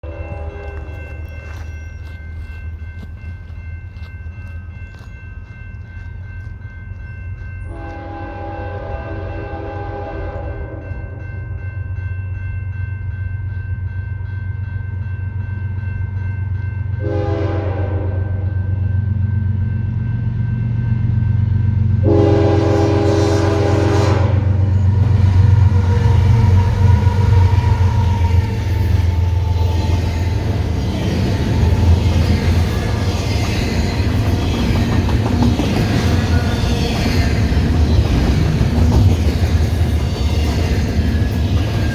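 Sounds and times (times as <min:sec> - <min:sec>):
diesel locomotive engine rumble: 0:00.0 - 0:41.9
locomotive air horn blasts: 0:07.7 - 0:10.9, 0:17.0 - 0:18.5, 0:22.0 - 0:28.4.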